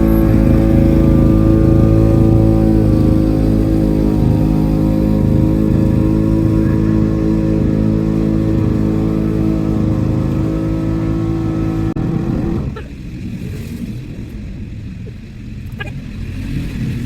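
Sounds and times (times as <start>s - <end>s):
lawn mower engine running: 0.0s - 13.3s.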